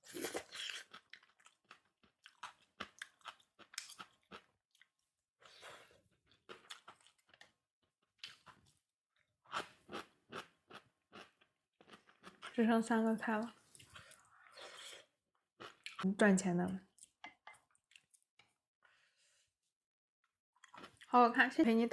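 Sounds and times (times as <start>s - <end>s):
person chewing food: 0.0s - 12.6s, 13.5s - 16.1s, 16.9s - 19.0s, 20.6s - 21.1s.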